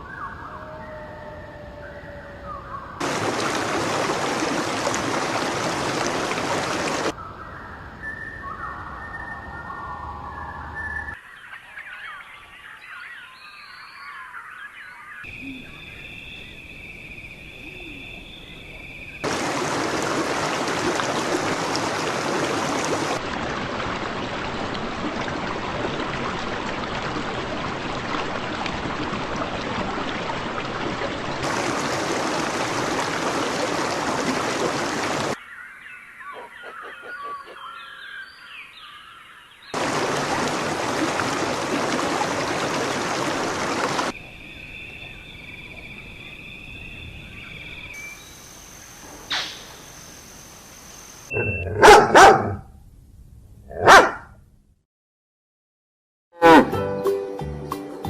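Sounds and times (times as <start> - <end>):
birds chirping: 0.0 - 20.7, 33.7 - 41.1.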